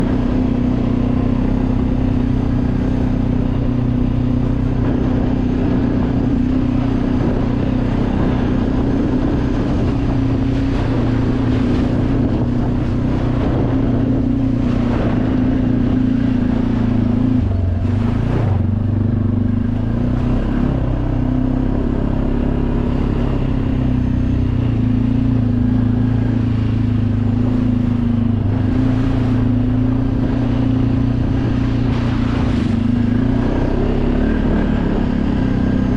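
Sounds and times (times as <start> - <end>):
dirt bike engine running: 0.0 - 35.9
wind noise on microphone: 0.0 - 35.9.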